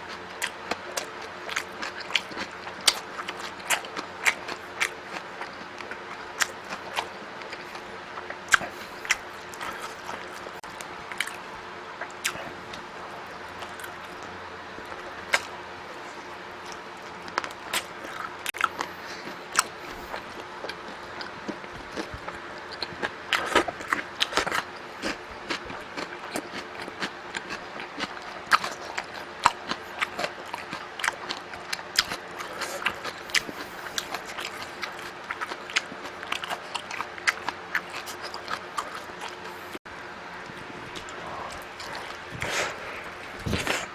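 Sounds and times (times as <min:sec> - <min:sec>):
person biting and chewing: 0:40.8 - 0:43.9.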